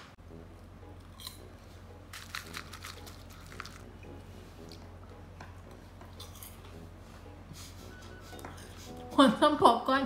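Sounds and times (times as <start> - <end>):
popcorn crunching: 1.0 - 1.5, 2.1 - 4.9.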